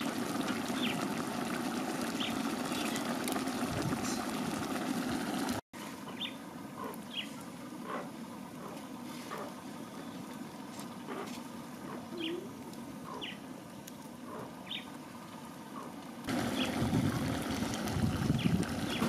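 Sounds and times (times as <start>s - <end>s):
low outdoor background: 0.0s - 19.0s
birds chirping: 2.1s - 3.1s, 6.0s - 7.4s, 12.1s - 13.5s, 14.3s - 14.9s, 16.4s - 16.8s.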